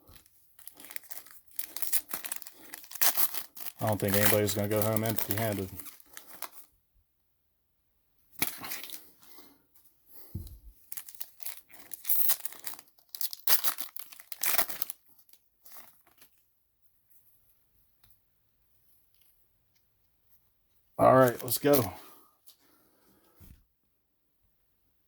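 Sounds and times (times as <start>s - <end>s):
plastic wrappers tearing and crinkling: 0.0s - 6.7s, 8.4s - 9.1s, 10.8s - 16.4s, 21.2s - 21.9s.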